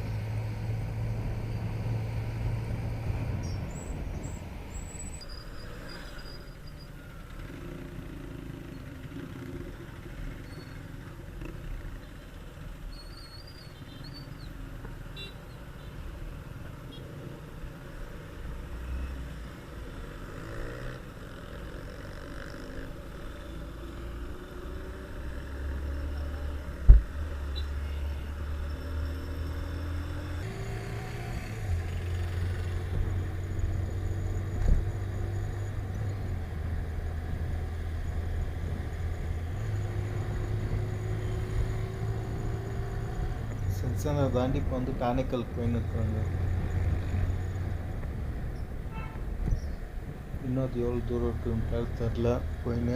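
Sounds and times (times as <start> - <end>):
motorcycle engine hum: 19.4 - 52.9.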